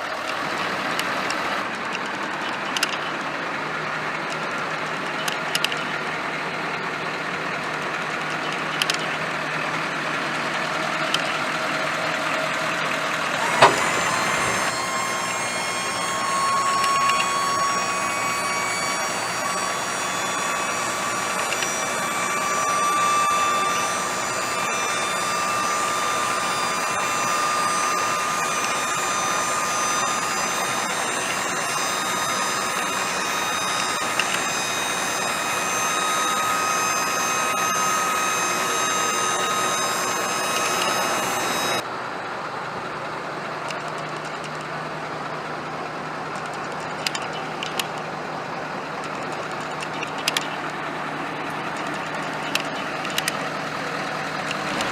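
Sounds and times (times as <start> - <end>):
diesel engine idling: 0.2 - 54.9
sharp clicks: 1.0 - 3.2, 5.1 - 5.9, 46.3 - 48.1, 49.0 - 50.8
high whine: 13.3 - 41.8.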